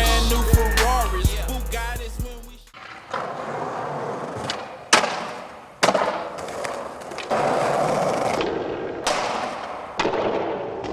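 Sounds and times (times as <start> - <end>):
skateboard wheels rolling: 2.7 - 10.9
skateboard slapping down: 2.8 - 10.9.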